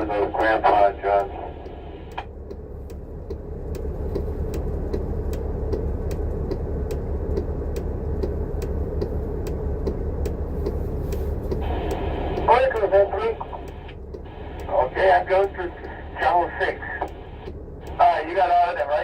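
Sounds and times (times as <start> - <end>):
bus engine and road rumble: 0.0 - 19.0
light regular ticks: 0.2 - 18.9.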